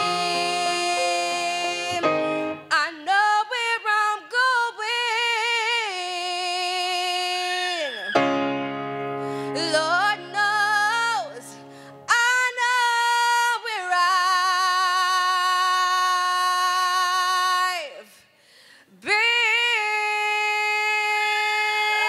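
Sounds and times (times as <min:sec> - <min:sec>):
sustained piano chord: 0:00.0 - 0:02.7
woman singing with vibrato: 0:00.0 - 0:08.2, 0:09.4 - 0:18.3, 0:19.0 - 0:22.0.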